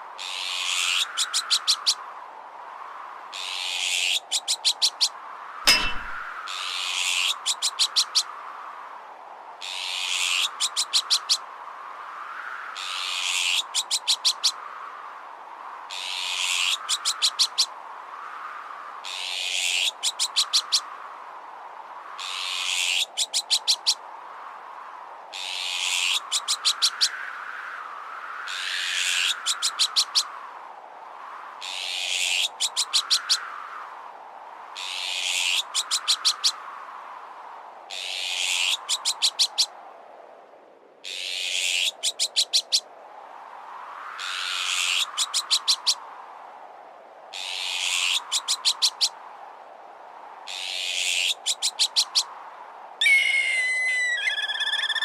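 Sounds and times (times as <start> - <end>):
wavering whistle: 53.0 - 55.0.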